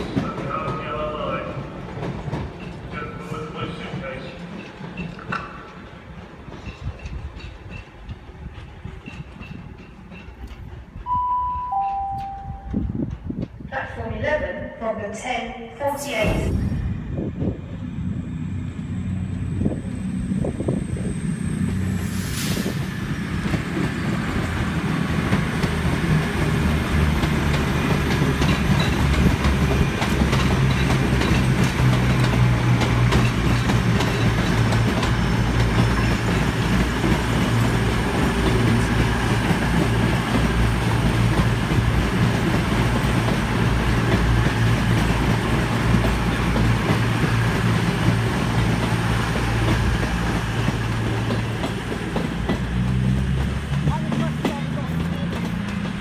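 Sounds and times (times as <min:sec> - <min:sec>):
wheels clicking on rails: 0:00.0 - 0:11.1, 0:23.2 - 0:56.0
train low drone: 0:00.0 - 0:56.0.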